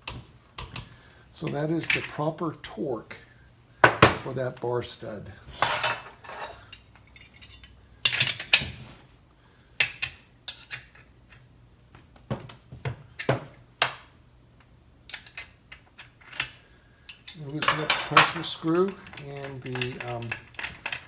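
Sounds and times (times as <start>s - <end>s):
metal hand tools clinking: 5.6s - 8.4s, 16.0s - 21.0s.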